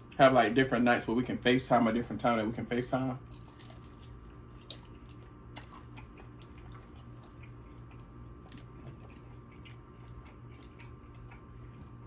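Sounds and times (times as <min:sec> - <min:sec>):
low electrical hum: 0:00.0 - 0:12.0
person chewing food: 0:03.2 - 0:12.0.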